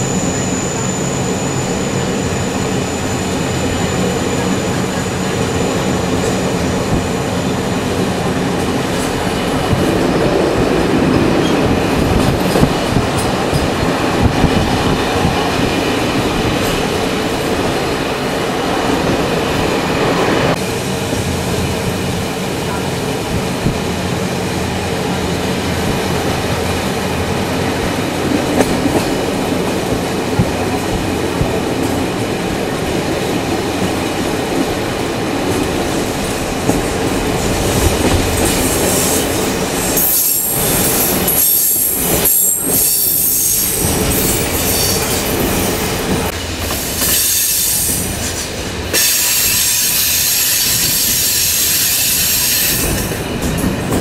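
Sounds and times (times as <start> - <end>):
train rumble on rails: 0.0 - 54.0.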